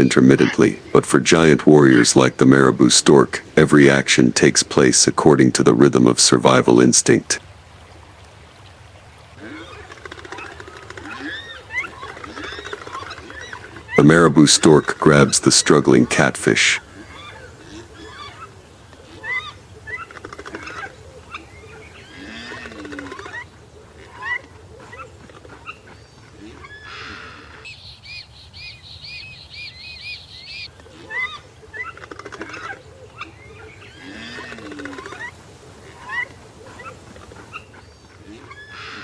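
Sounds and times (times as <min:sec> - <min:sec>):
birds chirping and whistling: 0:09.6 - 0:39.0.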